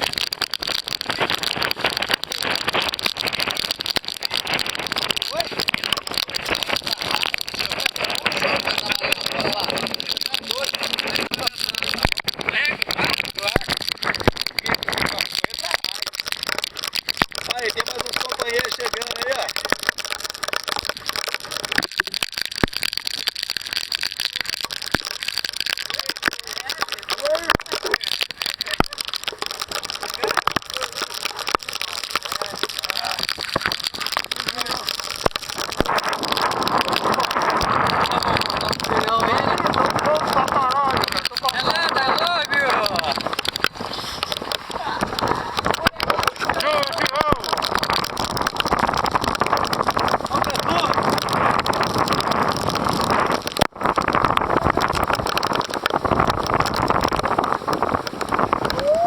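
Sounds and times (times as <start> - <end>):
heavy rain on a surface: 0.0 - 59.0
wind buffeting microphone: 32.4 - 59.0.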